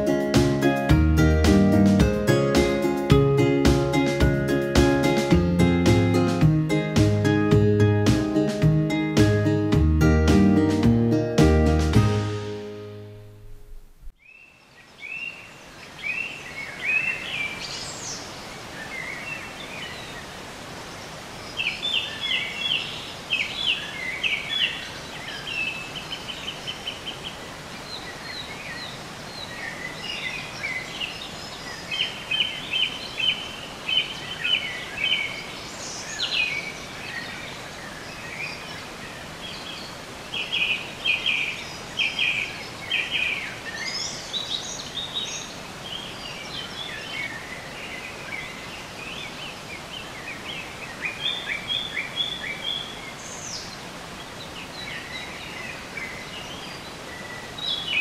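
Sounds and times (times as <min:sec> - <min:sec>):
songbirds trilling and chirping: 0:14.2 - 0:58.0.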